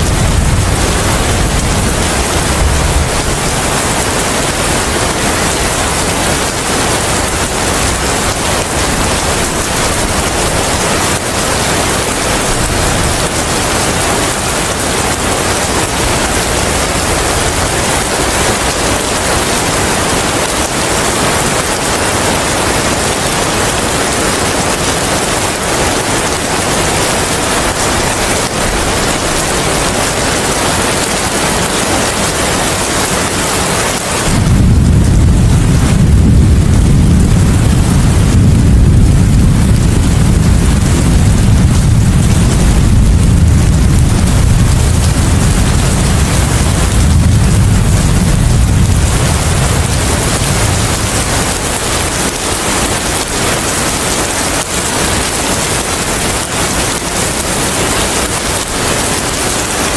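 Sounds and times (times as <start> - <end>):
low rumble: 0.0 - 4.9, 34.3 - 53.3
steady rain: 0.0 - 59.9
wind: 0.0 - 59.9.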